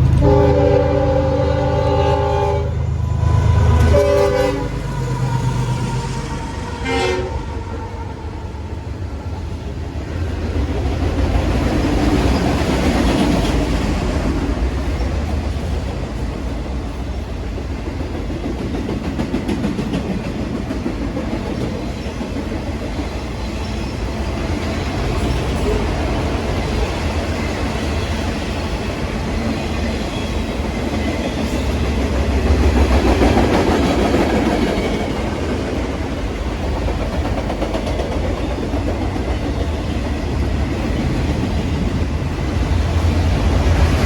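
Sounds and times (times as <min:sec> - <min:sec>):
train horn: 0:00.0 - 0:08.6
train rumbling over rails: 0:00.0 - 0:44.0.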